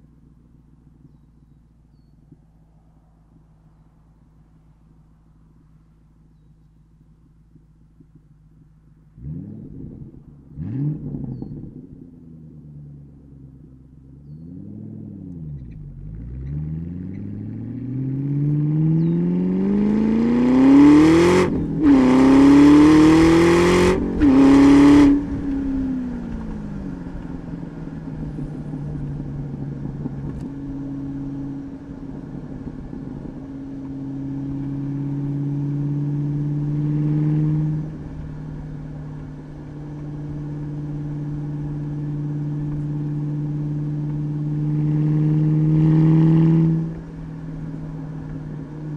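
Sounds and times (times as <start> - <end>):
car engine accelerating: 0.0 - 48.9.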